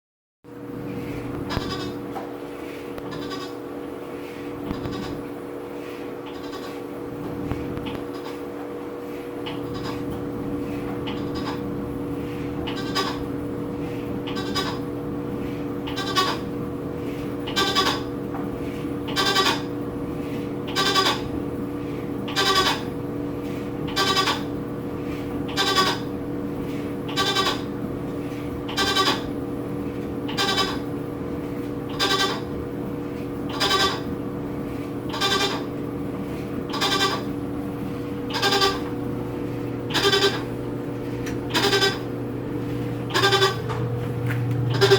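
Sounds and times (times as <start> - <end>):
washing machine humming: 0.5 - 44.9
high squeak from washing machine: 1.5 - 2.0, 3.1 - 3.6, 4.7 - 5.2, 9.4 - 15.0, 15.8 - 18.2, 19.0 - 19.8, 20.7 - 21.3, 22.3 - 22.9, 23.9 - 24.6, 25.5 - 26.1, 27.1 - 27.7, 28.7 - 29.3, 30.3 - 30.9, 31.9 - 32.6, 33.5 - 34.1, 35.1 - 35.7, 36.7 - 37.4, 38.3 - 39.0, 39.8 - 40.6, 41.5 - 44.9.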